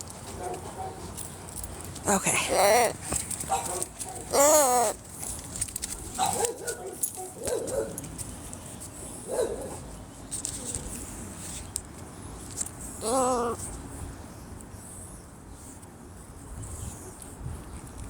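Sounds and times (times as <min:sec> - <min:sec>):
dog whining: 0:02.4 - 0:05.0, 0:13.0 - 0:13.7.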